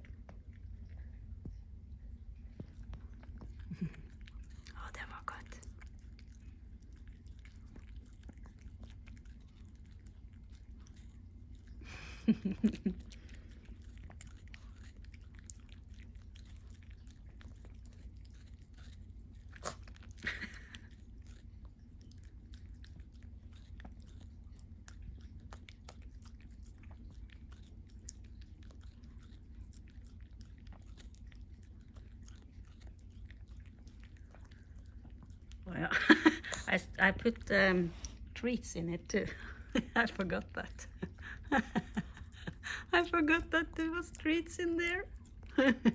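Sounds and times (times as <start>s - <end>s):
dog chewing and crunching: 2.4s - 45.9s.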